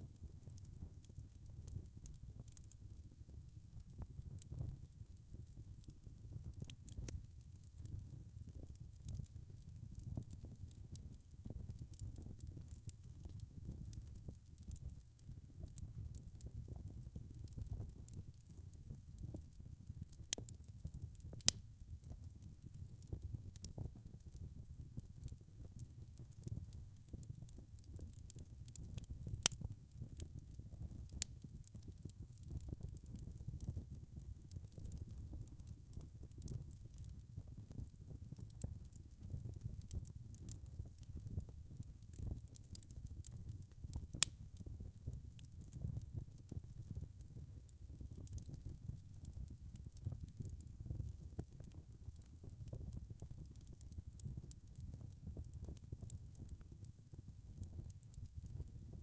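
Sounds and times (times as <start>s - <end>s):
fire crackling and popping: 0.0s - 59.0s
fire rumbling: 27.2s - 37.2s, 37.8s - 48.8s.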